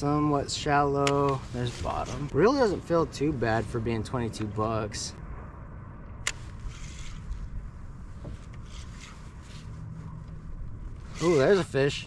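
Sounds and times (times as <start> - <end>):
wind: 0.0 - 12.0
faint rustles: 1.2 - 2.4, 6.4 - 12.0.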